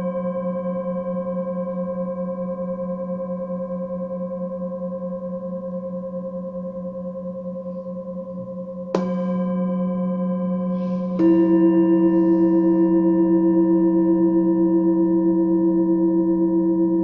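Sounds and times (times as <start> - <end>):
singing bowls ringing: 0.0 - 17.0
singing bowl struck: 7.7 - 17.0.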